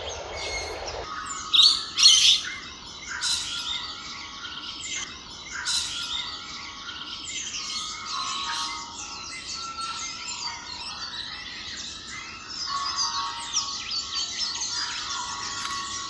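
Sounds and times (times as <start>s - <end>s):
wild birds chirping: 0.0s - 9.7s.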